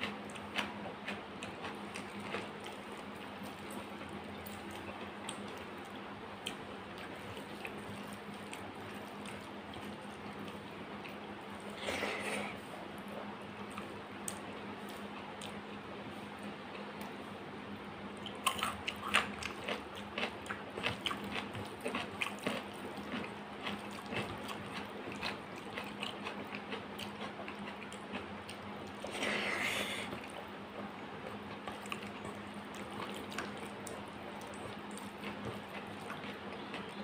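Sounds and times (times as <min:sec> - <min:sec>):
wet close-up chewing: 0:00.0 - 0:12.6, 0:18.2 - 0:37.0
steady low hum: 0:00.0 - 0:37.0.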